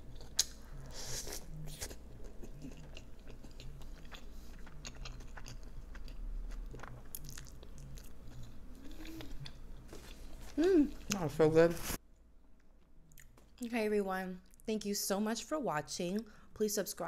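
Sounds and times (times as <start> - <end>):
chewing with wet lip smacking: 1.5 - 11.2.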